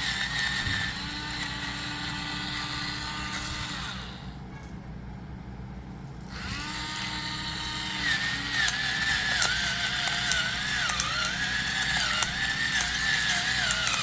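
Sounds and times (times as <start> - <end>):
electric grinder motor whirring: 0.0 - 4.3, 6.3 - 14.0
crackling clicks of grinding: 7.0 - 14.0.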